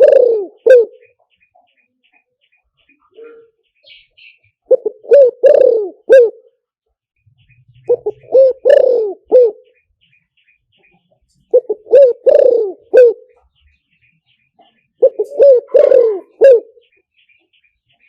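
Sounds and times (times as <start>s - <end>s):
dove cooing: 0.0s - 1.4s, 2.9s - 6.6s, 7.5s - 9.8s, 11.4s - 13.5s, 14.6s - 17.0s.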